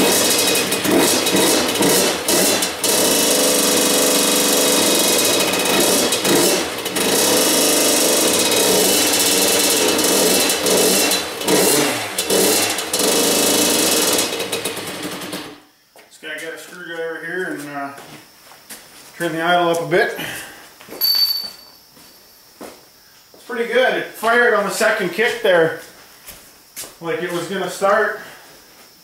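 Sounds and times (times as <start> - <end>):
two-stroke engine revving: 0.0 - 15.6.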